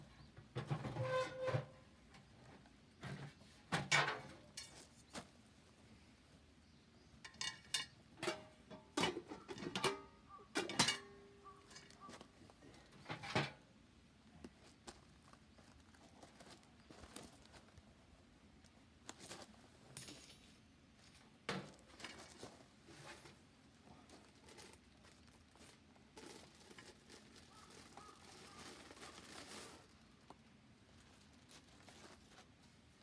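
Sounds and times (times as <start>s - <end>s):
faint crinkling and rustling: 0.5s - 6.0s, 11.4s - 33.0s.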